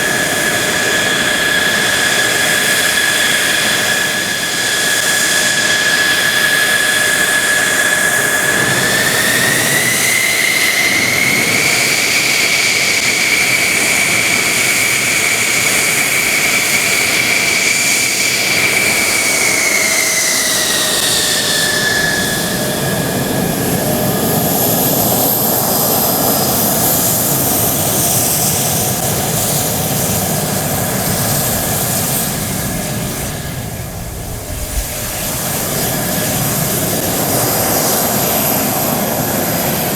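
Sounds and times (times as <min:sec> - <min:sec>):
jet engine whine: 0:00.0 - 0:39.9
high thin whistle: 0:17.2 - 0:24.0.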